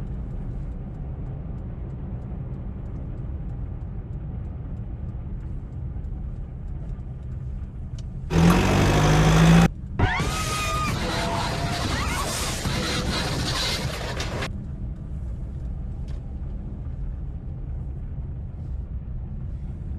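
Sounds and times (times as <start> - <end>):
car driving rumble: 0.0 - 19.9
loud burst of noise: 8.3 - 14.5.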